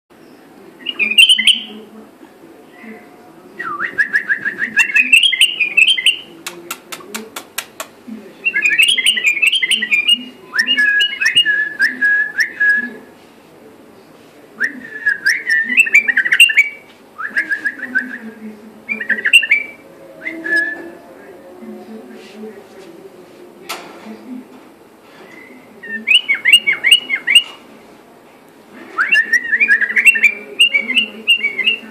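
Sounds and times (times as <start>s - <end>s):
bird singing warbling whistles: 18.9s - 20.9s, 29.0s - 31.9s.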